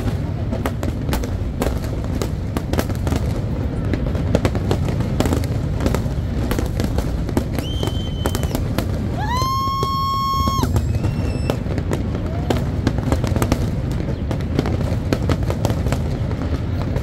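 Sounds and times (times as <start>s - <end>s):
fireworks bangs and crackles: 0.0s - 17.0s
fireworks rumble: 0.0s - 17.0s
shrill firework whistle: 7.5s - 12.7s.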